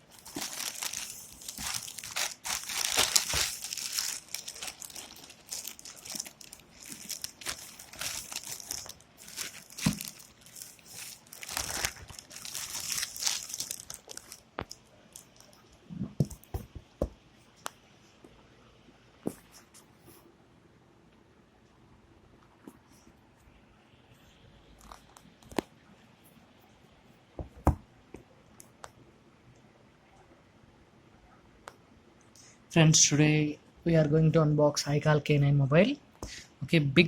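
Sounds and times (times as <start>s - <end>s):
plastic packaging crinkling and tearing: 0.0s - 15.7s.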